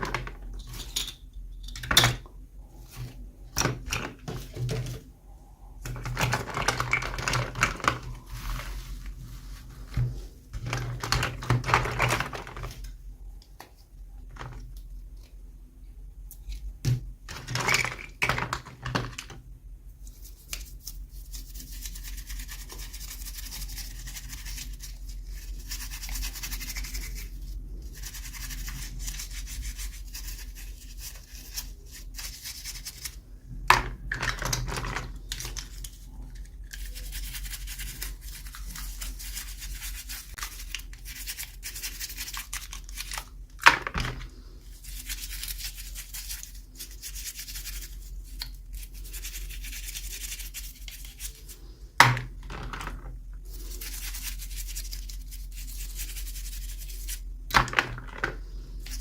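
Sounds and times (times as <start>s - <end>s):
toy packaging scratching and rubbing: 5.9s - 12.9s, 20.1s - 33.2s, 34.2s - 43.4s, 44.2s - 51.7s, 52.5s - 57.4s, 58.8s - 59.0s.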